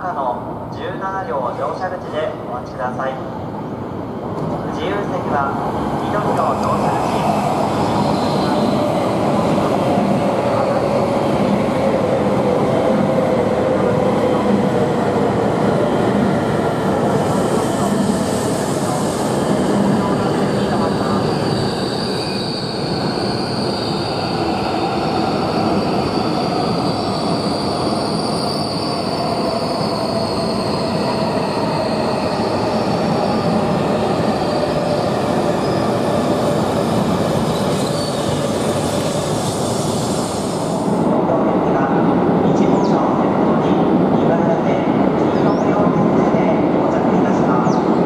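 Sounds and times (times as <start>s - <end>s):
train wheels squealing: 6.4s - 11.0s, 20.2s - 40.8s.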